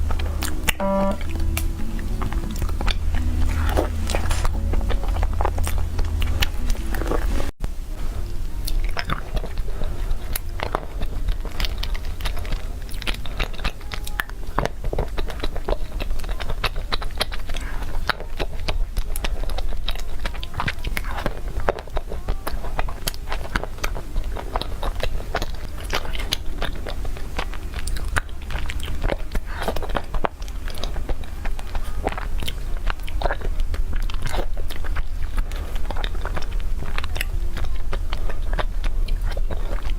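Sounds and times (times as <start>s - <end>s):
person chewing cake: 0.0s - 7.6s, 8.2s - 39.9s
steady low hum: 0.0s - 20.0s.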